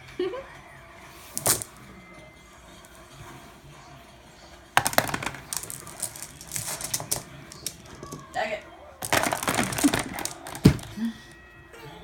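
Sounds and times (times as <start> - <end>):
marbles clacking: 4.8 - 11.0.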